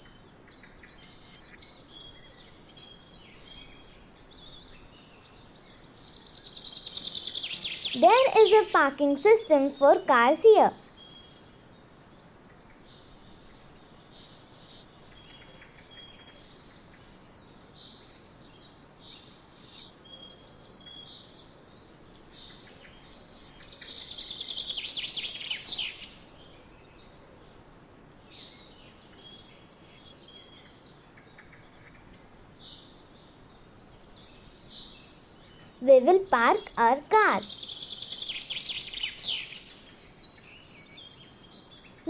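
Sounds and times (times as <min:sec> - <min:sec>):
birds calling: 0:06.8 - 0:10.8
fast bird chattering: 0:07.0 - 0:10.7.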